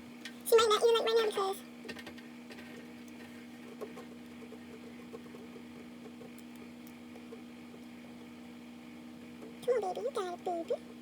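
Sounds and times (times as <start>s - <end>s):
small clicks and rustles: 1.8s - 7.9s.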